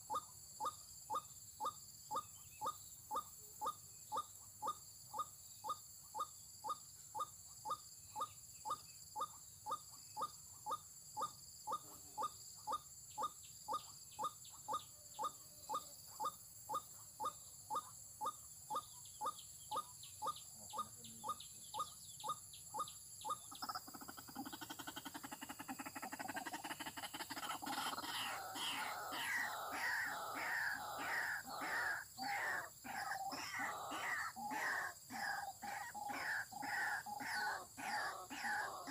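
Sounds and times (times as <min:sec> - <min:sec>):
waterhen call: 0:23.6 - 0:38.9.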